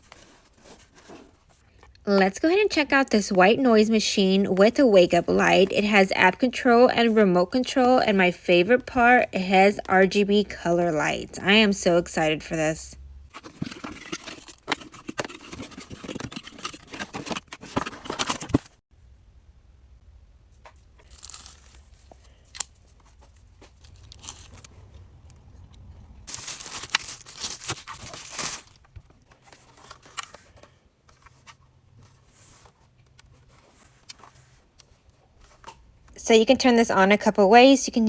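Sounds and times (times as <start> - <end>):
handling clicks and knocks: 13.4 - 18.7
packaging crinkling and tearing: 21.0 - 22.1, 23.8 - 24.7, 26.3 - 28.9.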